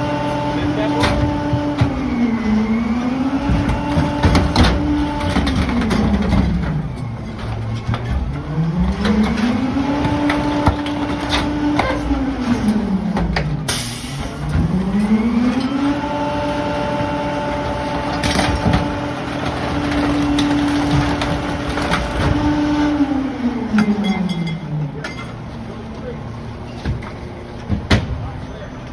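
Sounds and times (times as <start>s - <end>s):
garbage truck engine revving: 0.0s - 28.9s
debris knocking and cracking: 18.1s - 22.7s.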